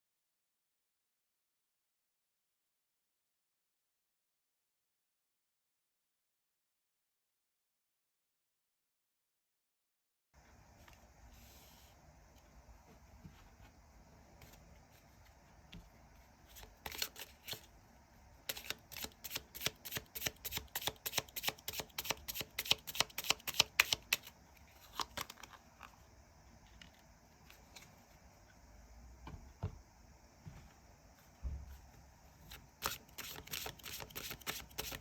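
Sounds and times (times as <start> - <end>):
cards being shuffled: 16.4 - 17.7, 18.5 - 25.6, 32.5 - 35.0.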